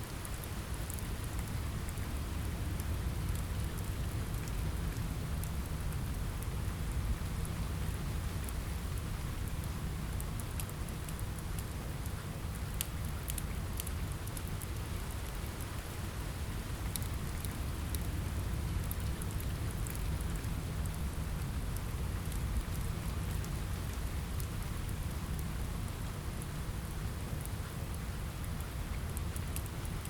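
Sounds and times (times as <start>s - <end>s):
rain on a window: 0.0s - 30.0s
wood fire crackling and popping: 9.6s - 15.8s, 16.8s - 30.0s.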